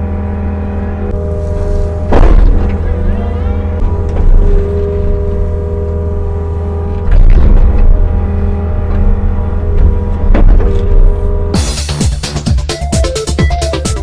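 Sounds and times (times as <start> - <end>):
excavator diesel engine running: 0.0 - 14.0
excavator knocks: 2.0 - 5.5, 8.8 - 12.0.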